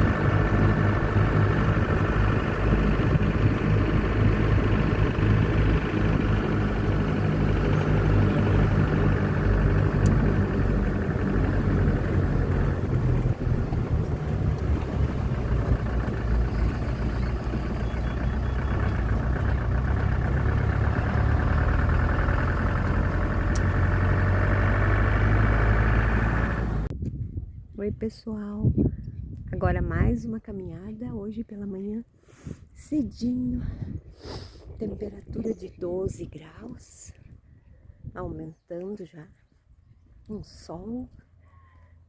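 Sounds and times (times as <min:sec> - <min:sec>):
vehicle engine humming: 0:00.0 - 0:26.9.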